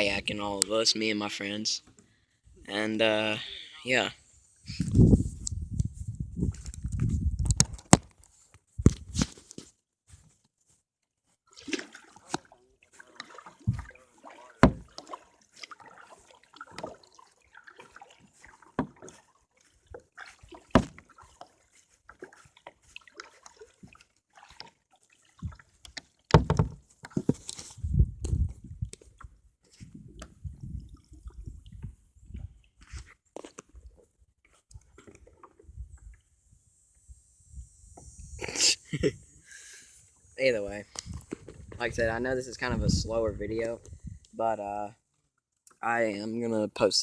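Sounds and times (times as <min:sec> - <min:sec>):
water splashing around kayak: 0:11.3 - 0:37.1
knocks and thumps: 0:14.6 - 0:14.9, 0:20.7 - 0:21.0, 0:26.3 - 0:27.5.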